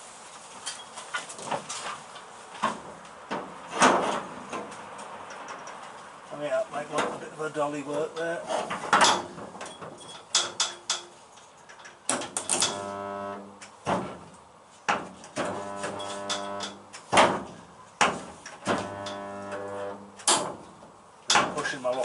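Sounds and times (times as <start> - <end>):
electrical welding buzz: 12.4 - 13.7, 15.4 - 17.0, 18.6 - 20.5.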